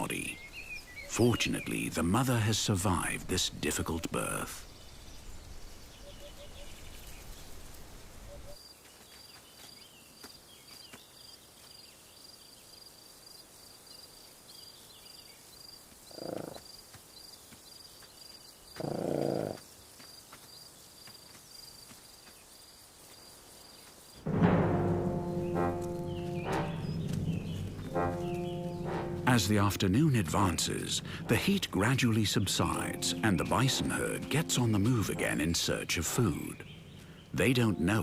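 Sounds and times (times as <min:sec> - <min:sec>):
insect chirping: 0:04.4 - 0:24.3
music: 0:24.2 - 0:36.6, 0:37.4 - 0:38.0.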